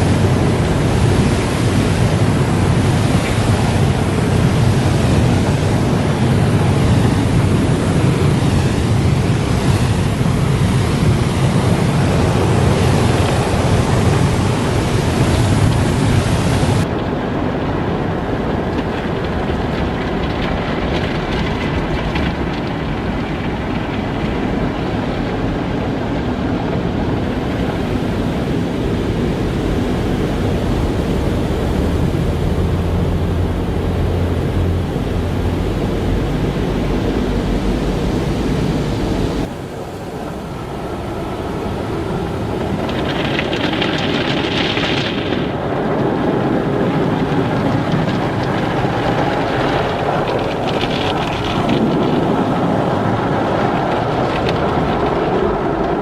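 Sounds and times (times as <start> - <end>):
car wash rushing noise: 0.0 - 56.0.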